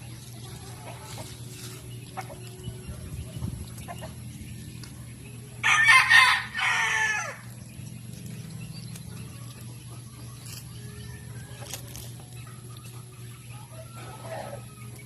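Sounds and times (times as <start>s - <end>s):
steady low hum: 0.0s - 15.0s
rooster crowing: 5.6s - 7.5s.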